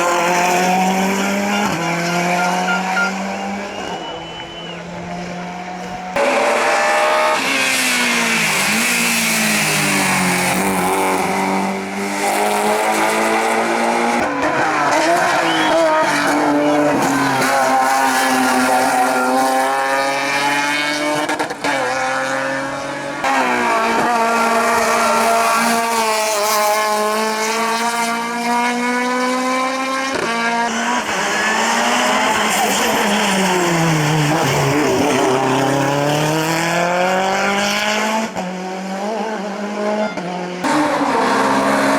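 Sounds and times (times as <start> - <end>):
racing car engines revving: 0.0 - 41.9
tyre squeal: 1.0 - 4.9, 14.4 - 19.8.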